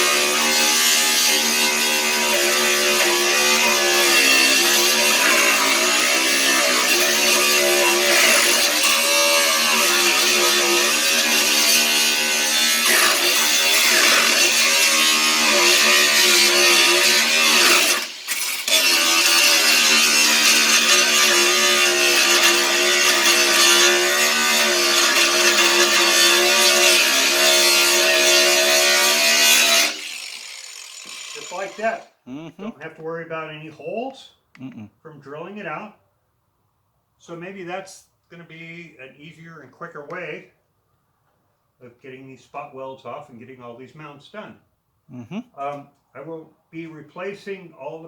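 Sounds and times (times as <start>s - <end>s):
angle grinder grinding metal: 0.0s - 32.4s.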